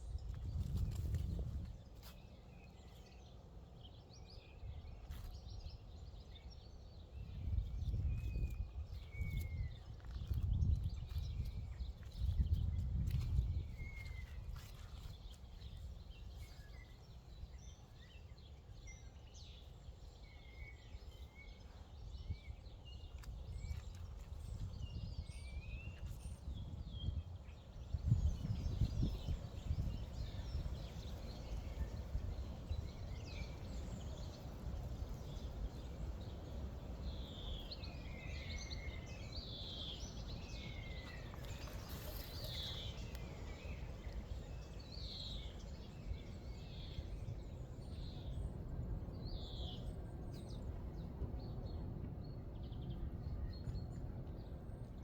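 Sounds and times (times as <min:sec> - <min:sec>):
birds chirping: 0:27.6 - 0:54.6.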